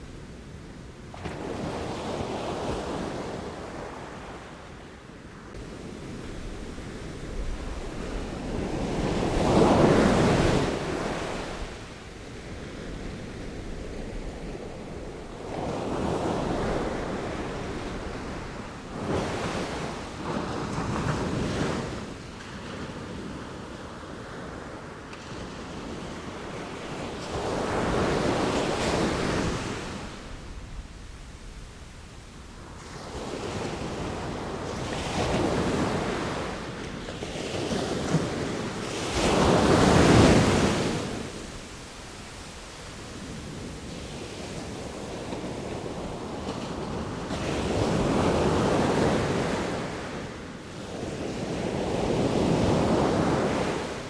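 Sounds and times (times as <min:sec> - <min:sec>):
ocean waves breaking: 0:05.6 - 0:21.1, 0:37.5 - 0:50.3.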